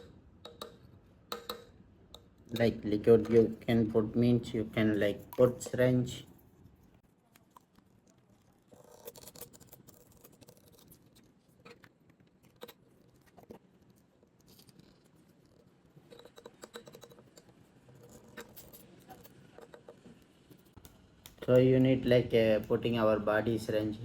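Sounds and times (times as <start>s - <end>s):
utensils scraping a small bowl: 16.0s - 20.2s.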